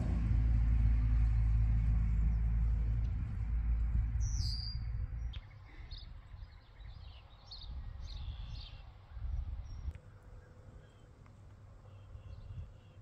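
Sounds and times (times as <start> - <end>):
low rumble: 0.0 - 7.0
birds chirping: 3.6 - 13.0.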